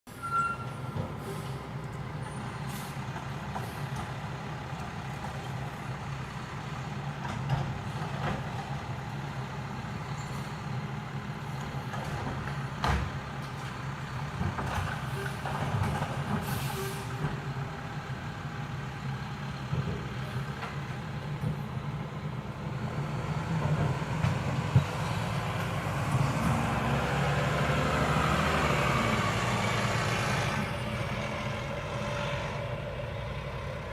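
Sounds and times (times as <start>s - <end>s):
garbage truck diesel engine: 0.1s - 33.9s
air brake hiss: 16.4s - 17.2s.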